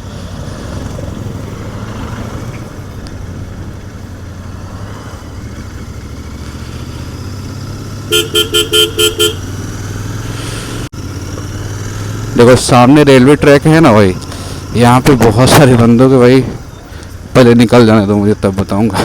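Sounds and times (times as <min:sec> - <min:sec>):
motorcycle engine running: 0:00.0 - 0:15.4
vehicle horn tooting: 0:08.0 - 0:09.6.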